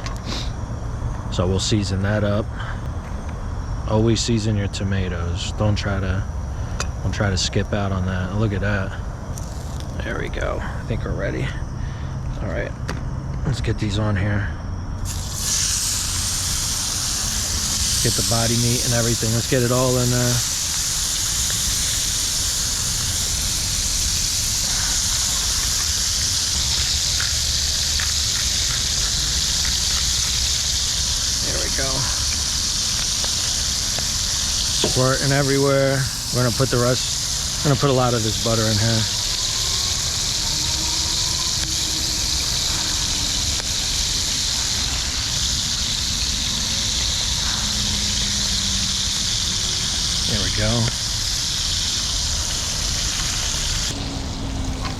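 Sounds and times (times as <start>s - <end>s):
frog legs sizzling in a pan: 9.4s - 10.0s, 15.0s - 54.8s.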